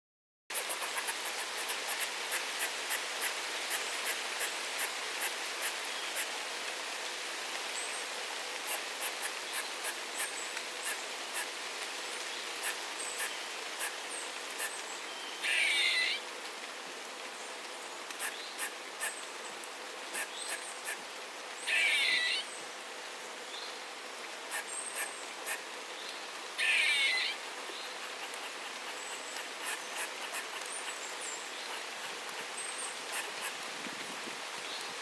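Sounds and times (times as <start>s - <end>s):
steady rain with drips: 0.5s - 35.0s
bird harsh calls: 12.6s - 16.2s, 20.1s - 21.0s, 21.6s - 22.5s, 24.5s - 25.7s, 26.6s - 33.6s.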